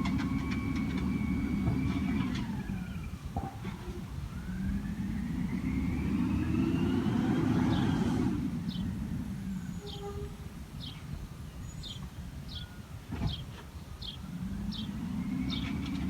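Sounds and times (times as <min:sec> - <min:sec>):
truck engine revving with whine: 0:00.0 - 0:10.0, 0:14.2 - 0:16.0.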